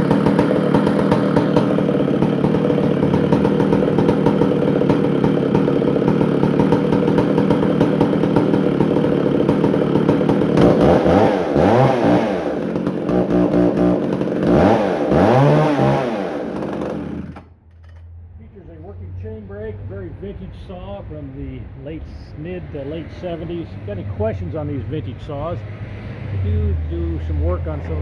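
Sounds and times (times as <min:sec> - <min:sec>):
chainsaw engine idling and revving: 0:00.0 - 0:18.0, 0:22.4 - 0:28.0.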